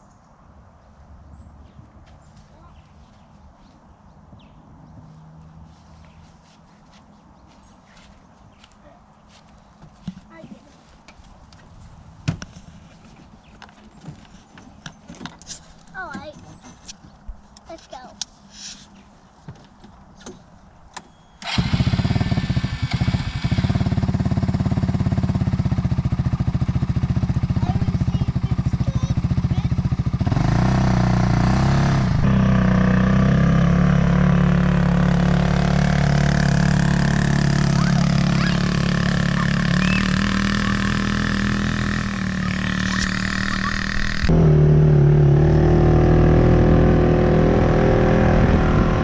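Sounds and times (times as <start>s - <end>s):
off-road vehicle engine running: 21.4s - 49.0s.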